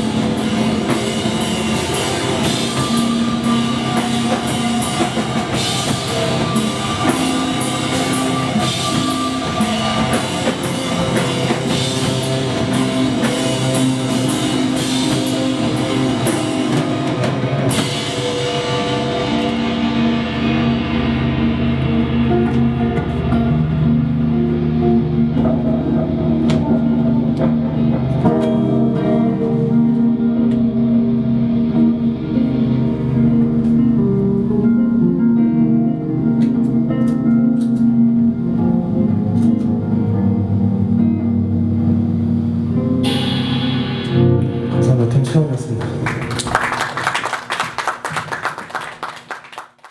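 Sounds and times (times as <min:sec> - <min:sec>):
cymbal crash ringing: 0:00.0 - 0:24.5, 0:42.5 - 0:45.2
drum kit playing: 0:00.0 - 0:34.9, 0:42.6 - 0:49.4
electric guitar chords: 0:00.0 - 0:49.2.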